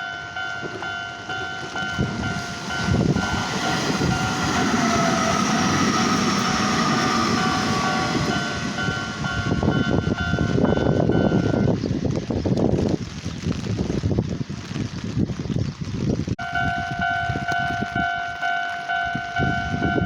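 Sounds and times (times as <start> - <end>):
level crossing warning bell: 0.0 - 11.8, 16.4 - 20.0
wheels clattering on rails: 0.0 - 12.7
train running noise with whine: 0.0 - 13.1, 16.3 - 20.0.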